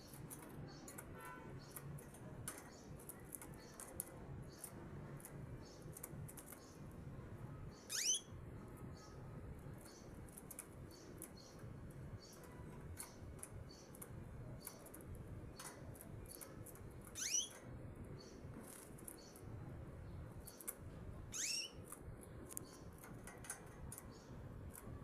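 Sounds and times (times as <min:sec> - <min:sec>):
canaries chirping: 0:00.0 - 0:25.0
upward-sweeping bird calls: 0:07.8 - 0:08.3, 0:17.2 - 0:17.6, 0:21.3 - 0:21.8.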